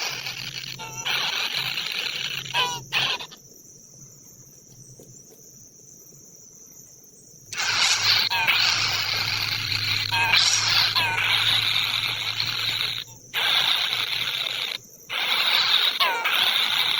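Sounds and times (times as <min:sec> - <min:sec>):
insect chorus: 0:00.0 - 0:16.9
short chirping call: 0:07.6 - 0:16.9.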